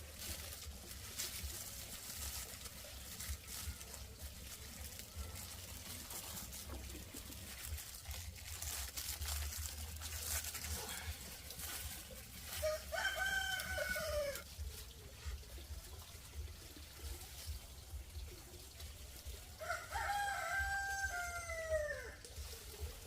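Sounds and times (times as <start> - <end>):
rooster crowing: 12.6 - 14.4, 19.6 - 22.2.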